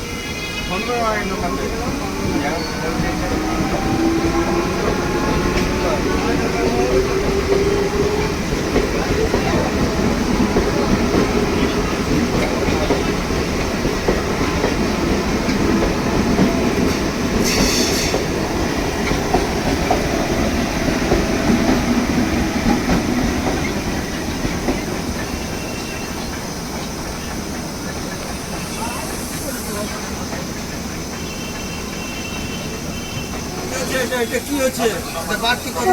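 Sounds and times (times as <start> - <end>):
train wheel squeal: 0.0 - 13.2, 16.4 - 18.4, 22.7 - 35.9
train rumbling on rails: 0.0 - 35.9.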